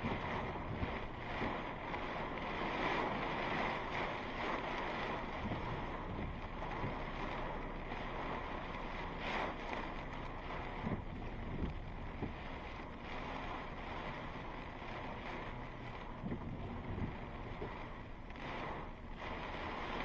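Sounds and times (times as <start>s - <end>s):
strong wind gusting: 0.0s - 1.8s, 16.1s - 17.6s.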